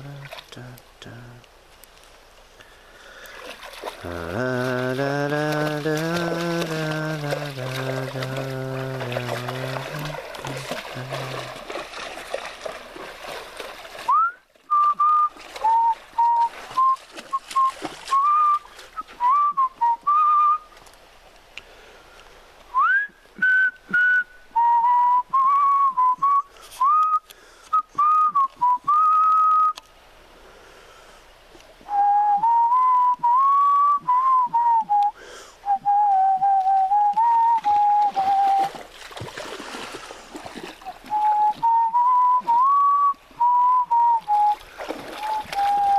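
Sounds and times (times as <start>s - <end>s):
person whistling a wobbly tune: 14.1s - 20.7s, 22.8s - 29.8s, 31.9s - 38.8s, 41.0s - 45.9s.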